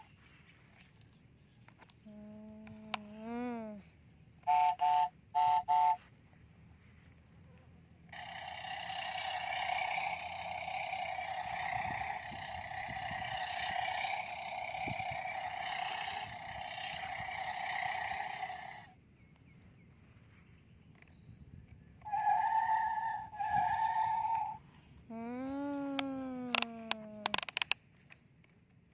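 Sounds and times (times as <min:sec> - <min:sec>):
electronic engine roar effect: 0:08.1 - 0:19.0, 0:22.1 - 0:24.6.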